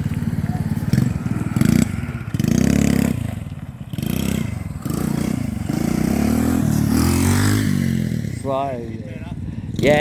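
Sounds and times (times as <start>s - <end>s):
small engine revving: 0.0s - 8.5s.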